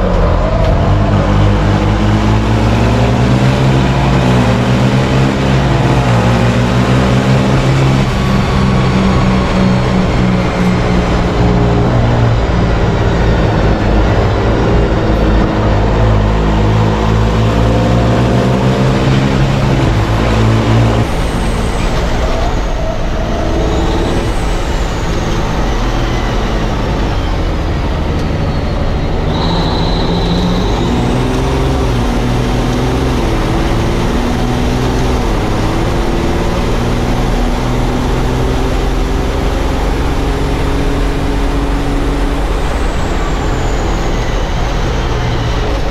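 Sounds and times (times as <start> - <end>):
truck engine running under load: 0.0 - 45.9
faint high whistle: 28.4 - 30.9.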